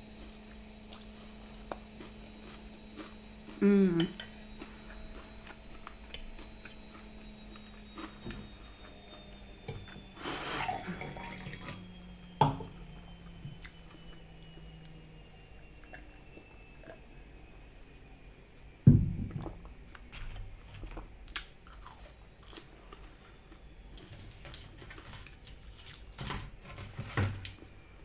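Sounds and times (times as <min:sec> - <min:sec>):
quiet chewing with mouth clicks: 0:00.0 - 0:11.8, 0:19.9 - 0:24.2.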